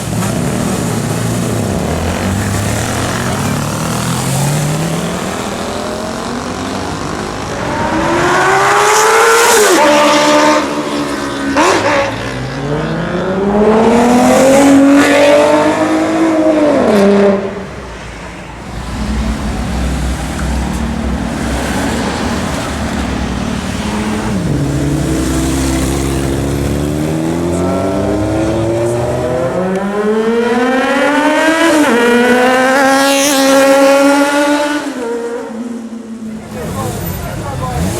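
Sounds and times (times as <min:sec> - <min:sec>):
motorcycle engine revving: 0:18.8 - 0:37.9.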